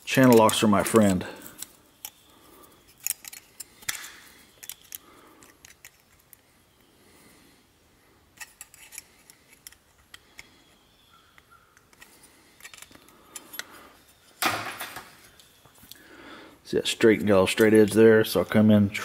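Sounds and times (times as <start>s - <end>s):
pliers clicking on copper: 2.9s - 6.4s.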